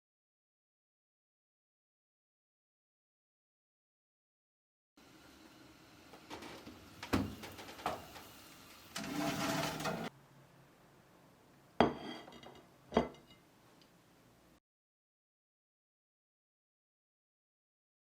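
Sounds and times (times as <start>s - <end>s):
dishes and utensils clinking: 11.8s - 13.5s.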